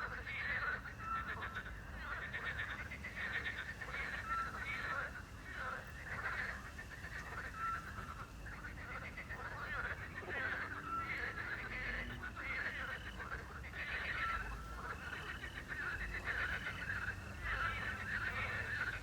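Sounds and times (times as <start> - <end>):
frogs croaking: 0.0 - 19.0.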